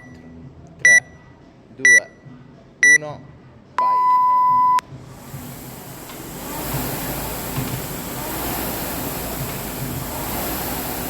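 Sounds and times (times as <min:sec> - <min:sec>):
rowing machine fan whir: 0:04.8 - 0:11.0.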